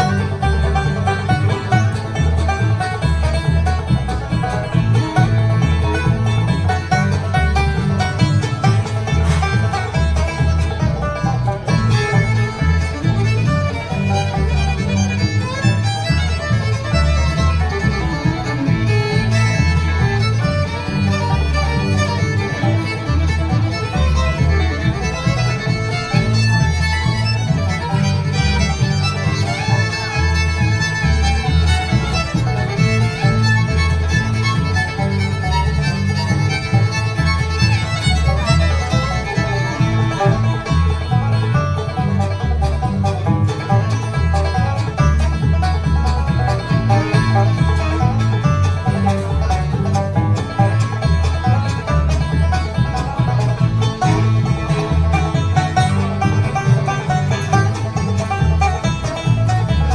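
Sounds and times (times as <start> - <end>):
banjo: 0.0 - 59.9
bass line: 0.0 - 59.9
fiddle lead: 0.0 - 59.9
guitar: 0.0 - 59.9.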